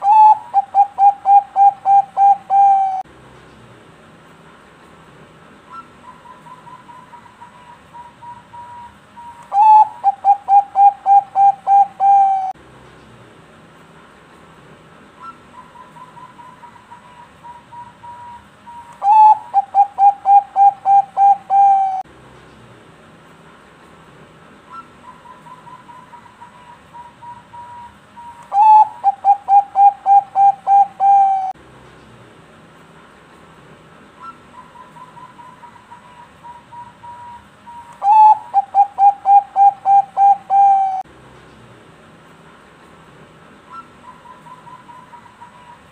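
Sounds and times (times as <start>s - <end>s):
dove cooing: 0.0s - 3.0s, 5.7s - 12.6s, 19.0s - 22.0s, 24.7s - 31.6s, 38.0s - 41.0s.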